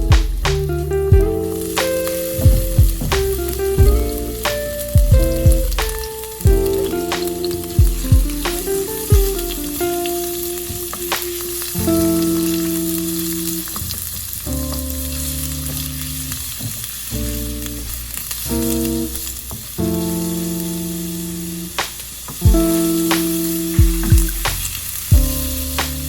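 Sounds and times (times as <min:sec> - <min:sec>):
soft background music chords: 0:00.0 - 0:13.8, 0:22.4 - 0:26.0
food sizzling in a frying pan: 0:01.4 - 0:26.0.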